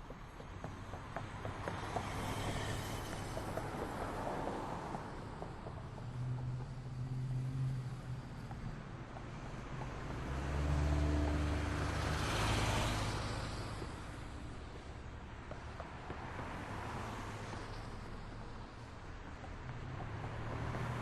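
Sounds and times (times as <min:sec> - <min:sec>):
background traffic noise: 0:00.0 - 0:21.0
vehicle driving past: 0:09.7 - 0:14.0.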